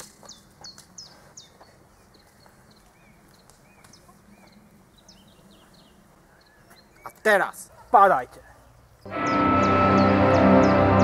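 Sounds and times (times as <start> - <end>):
birds chirping and whistling: 0.0 - 7.9, 8.9 - 11.0.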